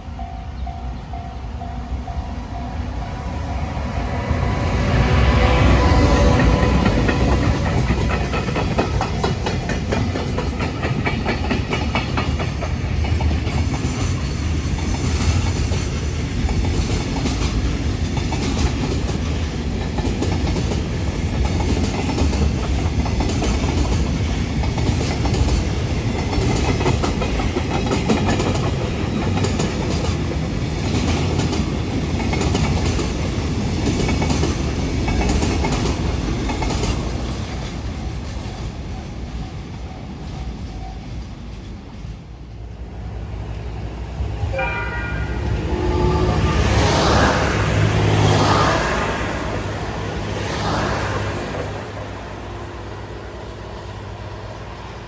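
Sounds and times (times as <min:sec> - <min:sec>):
train wheels clacking over rail joints: 0:04.4 - 0:42.2.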